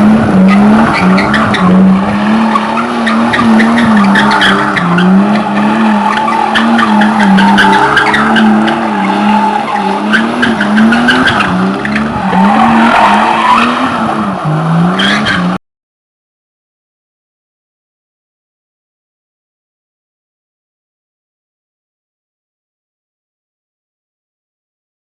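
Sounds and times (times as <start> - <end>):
car engine revving hard: 0.0 - 15.6.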